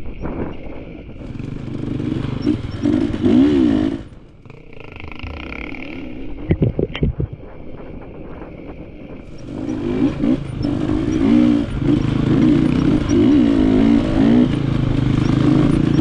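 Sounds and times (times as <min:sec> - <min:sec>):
dirt bike engine revving: 0:01.2 - 0:16.0
knocks and clatter from bike: 0:06.5 - 0:16.0.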